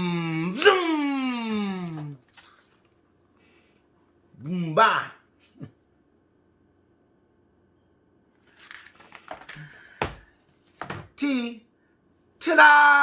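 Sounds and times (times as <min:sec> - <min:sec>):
paper page rustling: 0:01.7 - 0:03.1, 0:08.3 - 0:09.6.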